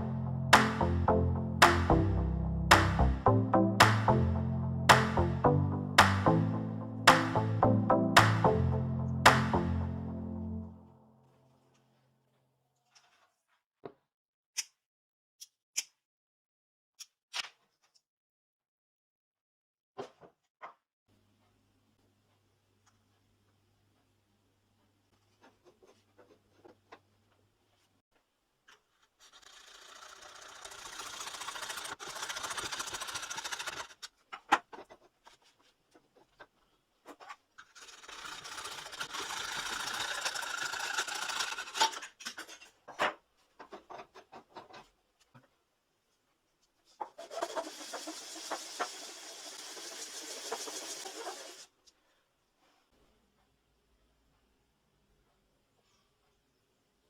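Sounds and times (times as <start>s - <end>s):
small motorised tool running: 29.3s - 34.0s, 37.8s - 42.0s, 47.3s - 51.7s.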